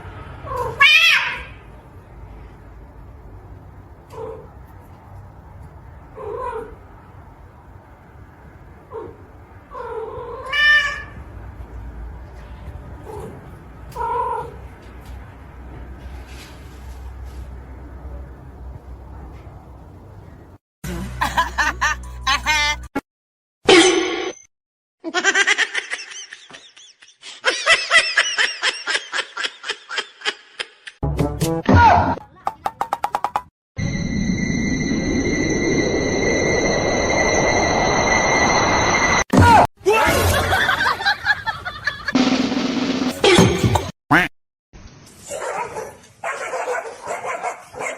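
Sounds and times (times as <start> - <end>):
cat meowing: 0.5 - 1.6
person laughing: 20.9 - 22.8, 25.0 - 31.0.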